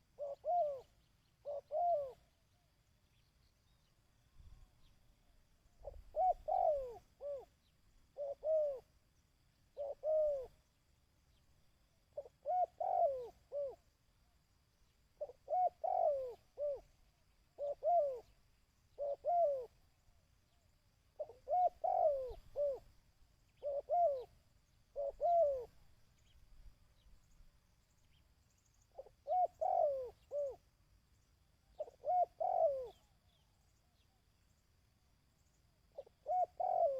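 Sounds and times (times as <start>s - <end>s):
dove cooing: 0.0s - 2.3s, 5.8s - 8.9s, 9.7s - 10.7s, 12.1s - 13.9s, 15.2s - 16.9s, 17.6s - 19.9s, 21.2s - 26.4s, 28.9s - 30.7s, 31.7s - 33.4s, 36.0s - 36.9s.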